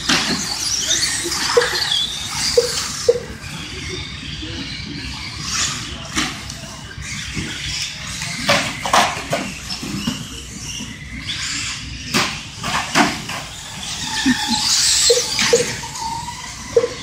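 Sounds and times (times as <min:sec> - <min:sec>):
rough clatter of toy truck tyres: 0:05.4 - 0:16.2.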